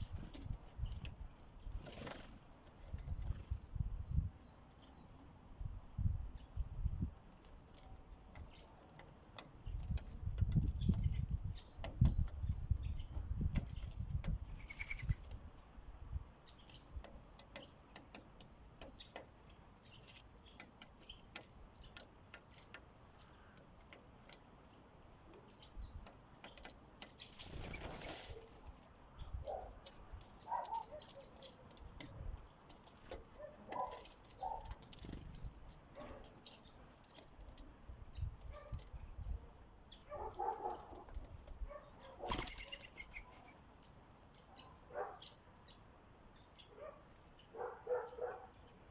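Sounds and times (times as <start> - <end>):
wings fluttering: 0.0 - 3.8, 13.8 - 15.4, 27.3 - 29.0, 32.7 - 37.6, 40.6 - 43.7
sparrows chirping: 0.0 - 48.9
beaks tapping: 16.5 - 28.5, 29.5 - 39.0.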